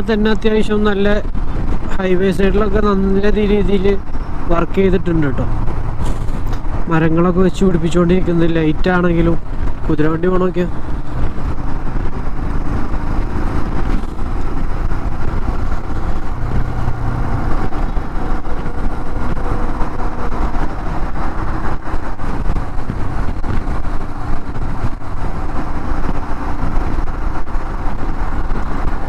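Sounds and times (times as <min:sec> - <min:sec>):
wind rush on microphone: 0:00.0 - 0:29.0
motorcycle engine running: 0:10.7 - 0:29.0.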